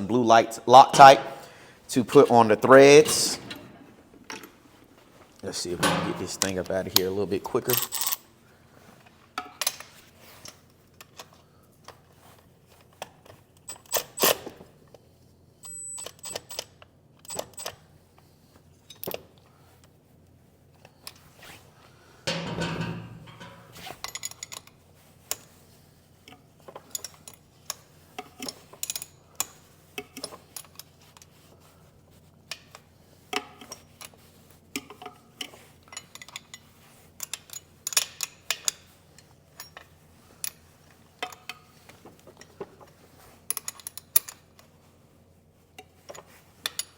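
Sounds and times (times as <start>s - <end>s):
wrenches and metal parts clinking: 5.6s - 6.8s, 22.3s - 24.7s, 26.7s - 31.0s, 34.8s - 44.6s.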